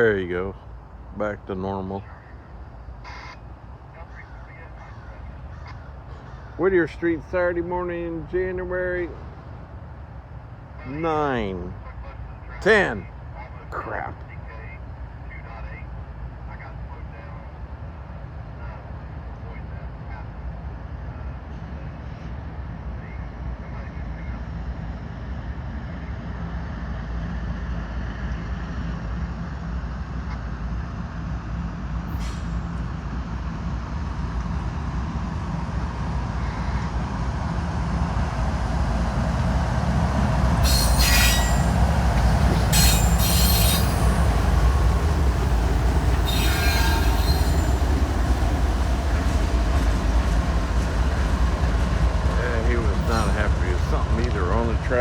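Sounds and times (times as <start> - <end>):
diesel locomotives droning: 0.0 - 55.0
high-pitched wheel squeal: 40.6 - 44.8, 45.8 - 48.2.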